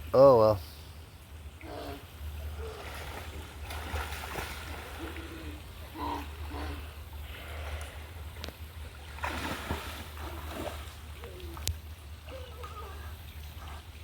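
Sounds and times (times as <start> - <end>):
water splashing: 1.4 - 14.0
children's voices: 11.3 - 13.2.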